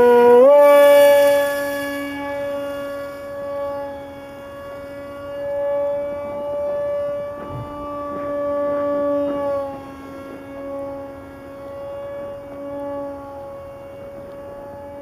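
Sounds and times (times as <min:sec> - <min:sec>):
model airplane motor droning: 0:00.0 - 0:15.0.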